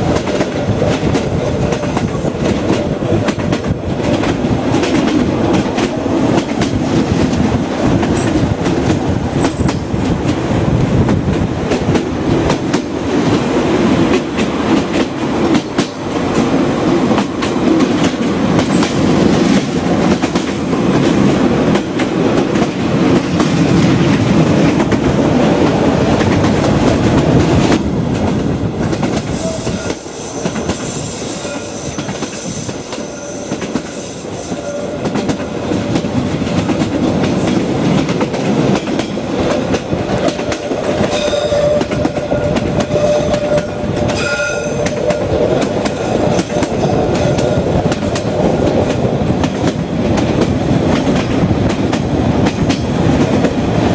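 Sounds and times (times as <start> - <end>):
train wheels clattering on rails: 0.0 - 53.9.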